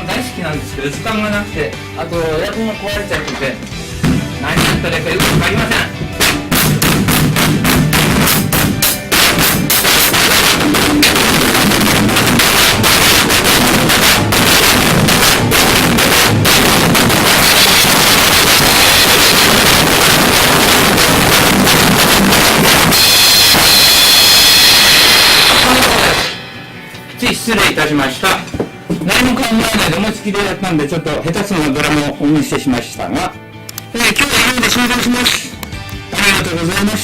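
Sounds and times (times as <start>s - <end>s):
drum hits: 3.2s - 26.4s
crashing cymbals: 6.2s - 26.5s.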